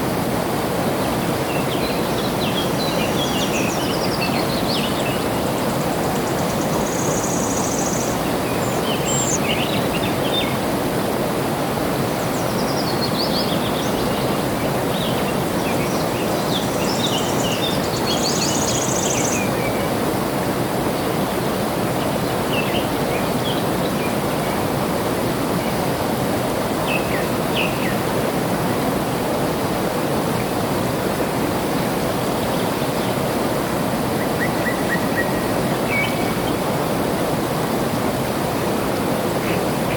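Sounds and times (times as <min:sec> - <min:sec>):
flowing water: 0:00.0 - 0:39.9
small birds chirping: 0:01.5 - 0:10.6, 0:12.4 - 0:19.8.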